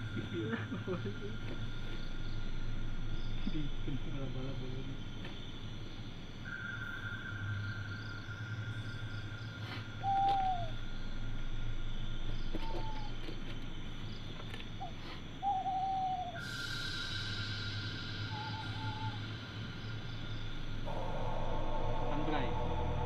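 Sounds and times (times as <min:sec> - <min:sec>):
night insects droning: 0:00.0 - 0:23.0
owl hooting: 0:09.6 - 0:11.0, 0:12.3 - 0:13.4, 0:14.7 - 0:23.0.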